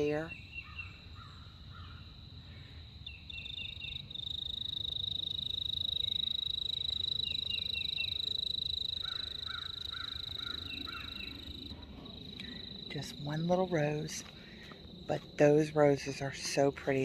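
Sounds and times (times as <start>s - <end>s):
small birds chirping: 0.0s - 17.0s
insect trilling: 3.1s - 14.3s.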